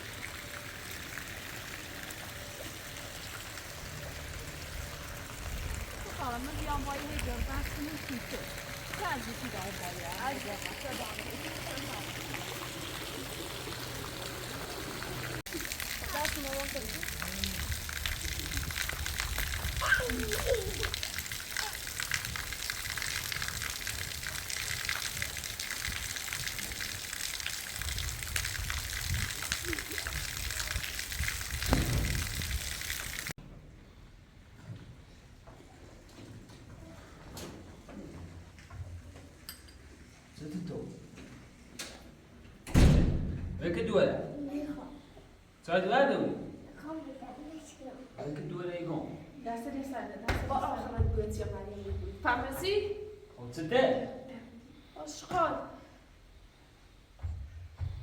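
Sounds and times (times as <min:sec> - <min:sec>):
water running and pouring: 0:00.0 - 0:33.4
heavy rain hissing: 0:01.7 - 0:33.4.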